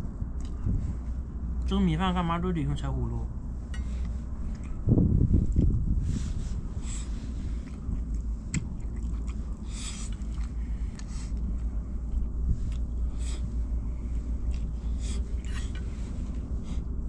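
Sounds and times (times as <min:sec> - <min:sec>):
steady low rumble: 0:00.0 - 0:17.0
person chewing: 0:00.4 - 0:00.7, 0:03.9 - 0:04.8, 0:05.4 - 0:05.8, 0:07.0 - 0:13.6, 0:14.3 - 0:15.8.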